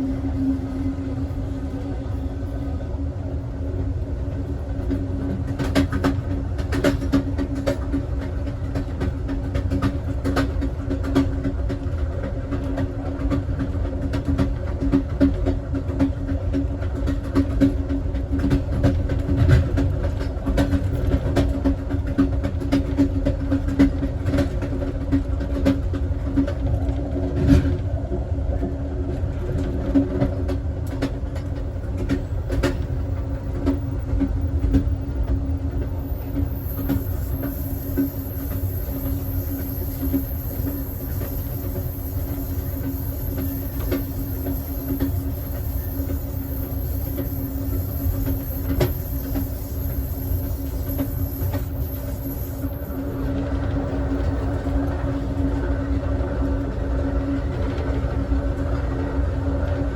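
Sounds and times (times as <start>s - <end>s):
train car rumbling on track: 0.0s - 59.9s.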